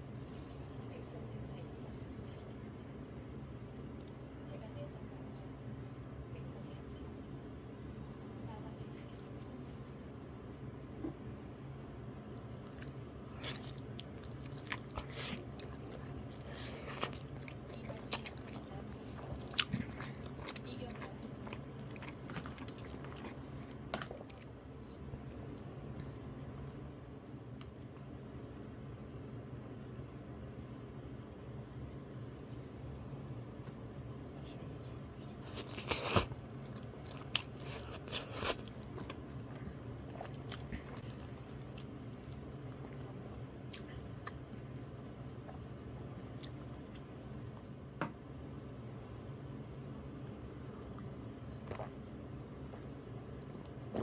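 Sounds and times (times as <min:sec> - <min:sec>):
person chewing noodles: 0:12.6 - 0:25.0, 0:35.2 - 0:43.0, 0:46.3 - 0:47.7, 0:50.7 - 0:54.0
person biting and chewing: 0:19.2 - 0:24.4, 0:35.4 - 0:41.2.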